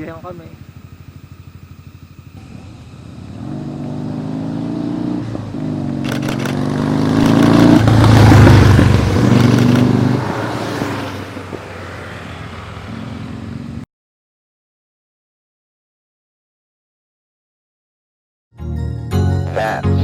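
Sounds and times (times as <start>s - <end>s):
motor vehicles passing: 0.0s - 13.9s
sharp clicks: 6.0s - 7.4s, 9.4s - 9.9s.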